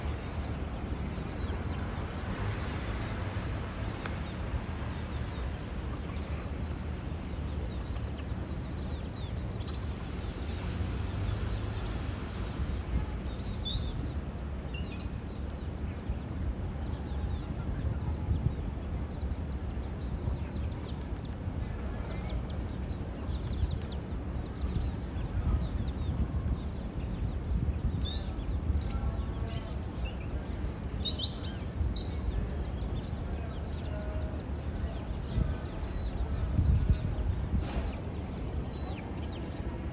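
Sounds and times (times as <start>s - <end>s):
steady low rumble: 24.5s - 39.9s
birds chirping: 24.7s - 39.9s.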